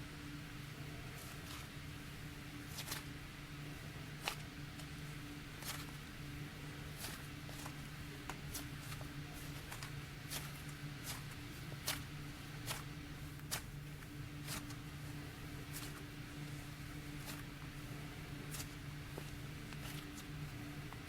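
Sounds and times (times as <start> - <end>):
hands squishing slime: 7.0 - 14.8, 15.6 - 16.2, 18.4 - 21.0.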